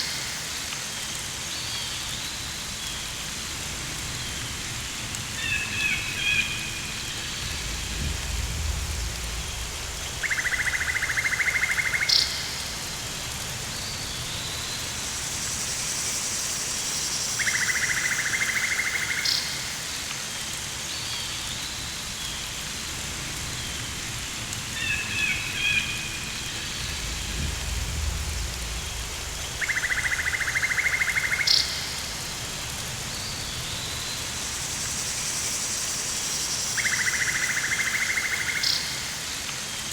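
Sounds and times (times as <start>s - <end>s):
rain hissing: 0.0s - 39.9s
low rumble: 6.8s - 11.1s, 26.1s - 30.5s.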